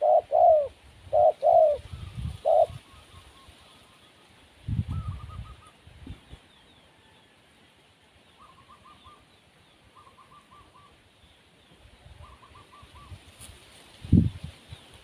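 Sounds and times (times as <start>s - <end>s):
dove cooing: 0.0s - 3.0s.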